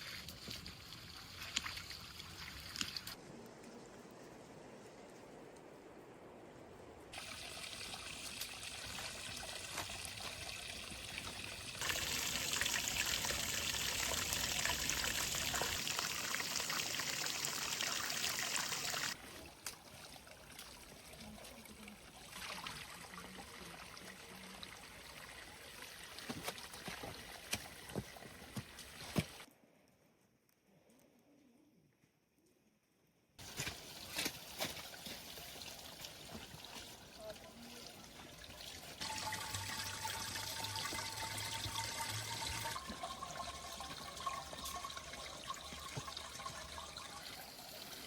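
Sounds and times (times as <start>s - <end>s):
water trickling: 7.2s - 29.5s, 33.4s - 48.0s.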